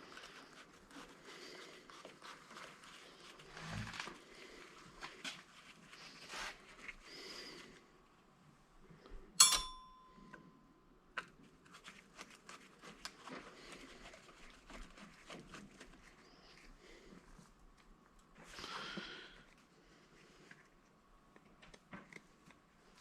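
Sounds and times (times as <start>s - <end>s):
rustling: 0.0s - 7.8s, 11.4s - 21.0s
metal clank with ringing: 9.4s - 10.2s.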